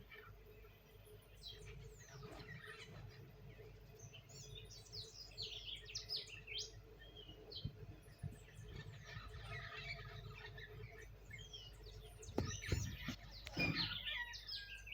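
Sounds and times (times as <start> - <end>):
parrots chirping: 8.5 - 14.9.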